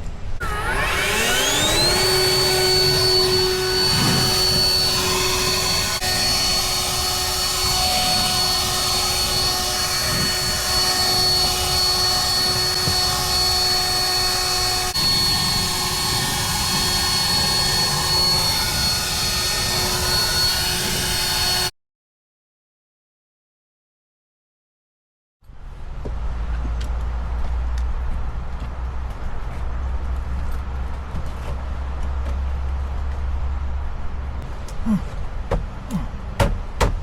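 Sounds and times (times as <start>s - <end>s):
power tool motor whining: 0.4s - 21.7s.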